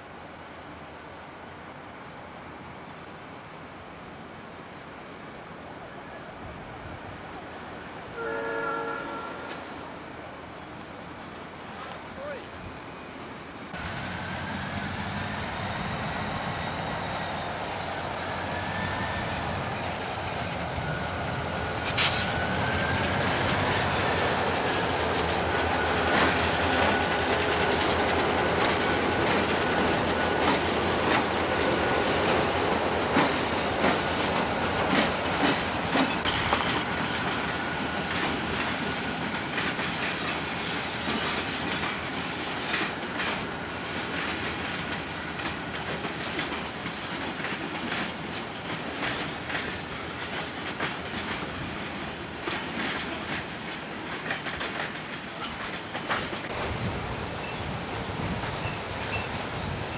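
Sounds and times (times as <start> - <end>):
freight train rolling past: 0.0 - 59.9
thin high squeal: 7.6 - 12.5, 14.2 - 27.7
wheels clicking over rail joints: 19.5 - 59.8.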